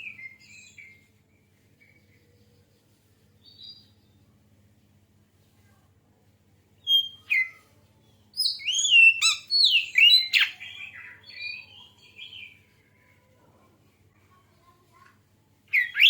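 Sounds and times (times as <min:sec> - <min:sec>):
bird singing whistles and chirps: 0:00.0 - 0:01.1, 0:06.8 - 0:07.6, 0:08.4 - 0:12.5, 0:15.7 - 0:16.0.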